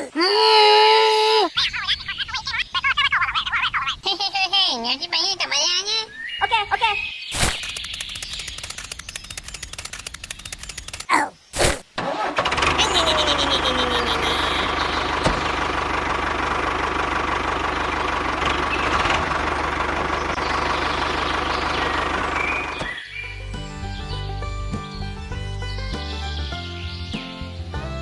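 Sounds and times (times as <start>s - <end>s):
small engine running: 12.0s - 25.3s.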